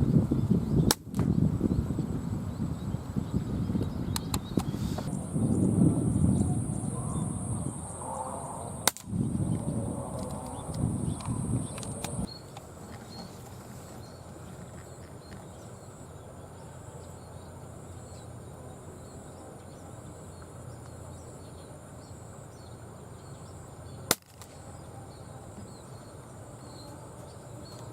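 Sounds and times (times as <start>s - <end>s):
outdoor background noise: 0.0s - 27.9s
air rifle shot: 8.8s - 9.2s, 24.1s - 24.6s.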